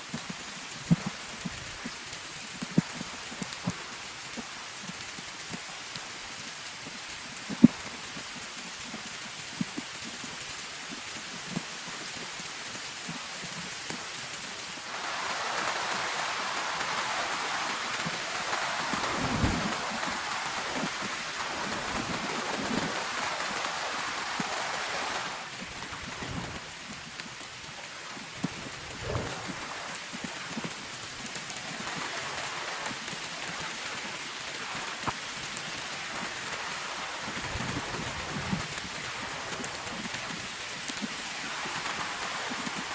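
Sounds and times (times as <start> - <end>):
rain falling on a tent: 0.0 - 42.9.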